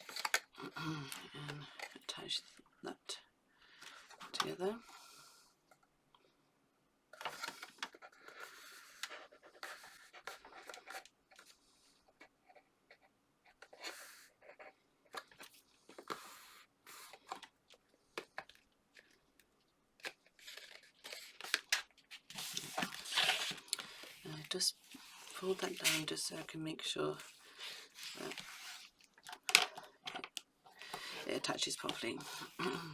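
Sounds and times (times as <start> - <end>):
card rustling and scraping: 0.0 - 0.5, 7.2 - 19.2, 20.0 - 26.5, 27.2 - 32.9.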